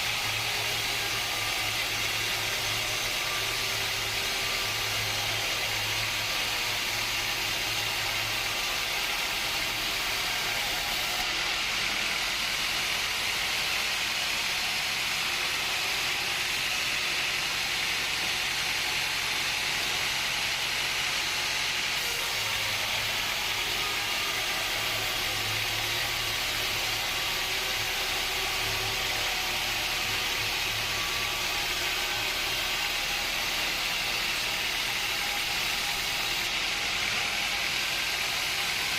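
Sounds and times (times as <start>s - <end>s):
sawmill machinery hiss: 0.0s - 38.9s.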